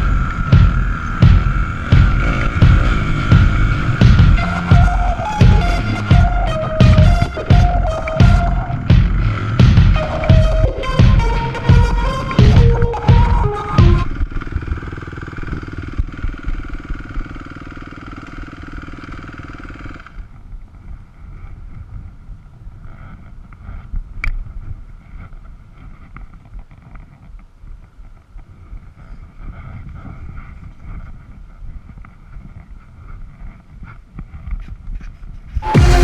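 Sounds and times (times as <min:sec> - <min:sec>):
dirt bike engine running: 0:00.0 - 0:26.1, 0:35.6 - 0:36.0.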